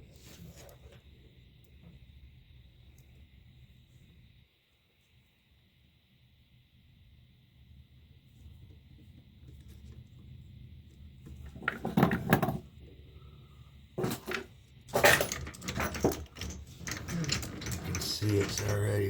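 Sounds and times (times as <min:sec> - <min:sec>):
metal clattering and knocking: 0:14.0 - 0:19.0.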